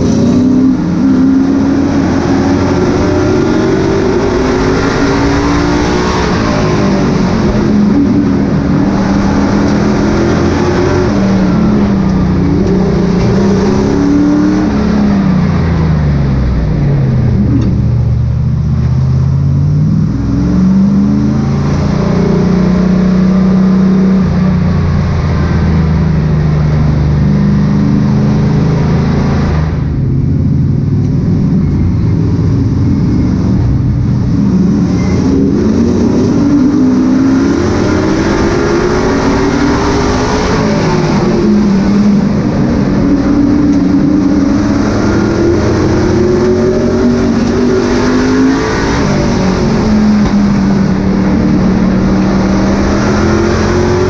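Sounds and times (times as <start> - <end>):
race truck engines running: 0.0 - 54.0.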